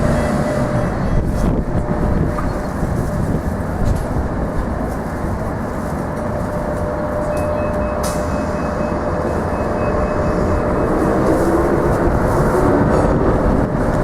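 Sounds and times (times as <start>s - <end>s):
tram wheels and motor rumbling: 0.0s - 14.0s.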